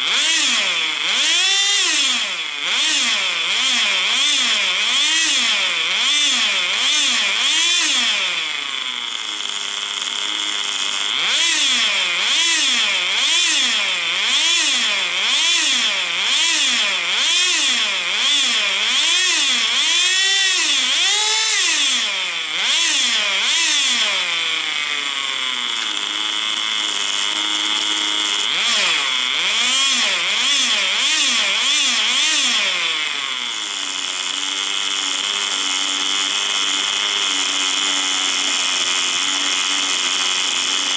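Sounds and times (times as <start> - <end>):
nitro rc car engine buzzing: 0.0 - 40.9.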